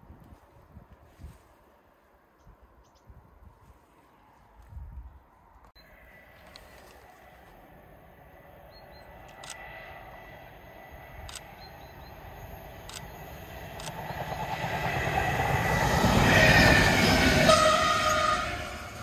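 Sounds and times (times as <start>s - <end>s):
train approaching: 5.7s - 19.0s
sharp clicks: 11.2s - 11.7s, 12.8s - 14.2s.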